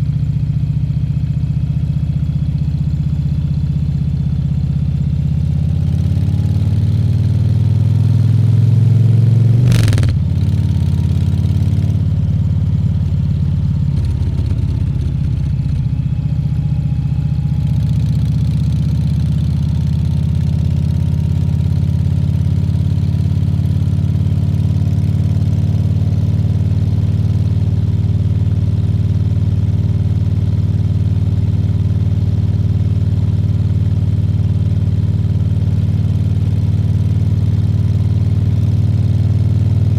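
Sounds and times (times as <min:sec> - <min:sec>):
motorcycle engine cruising: 0:08.1 - 0:17.5
short sharp knock: 0:09.6 - 0:10.2.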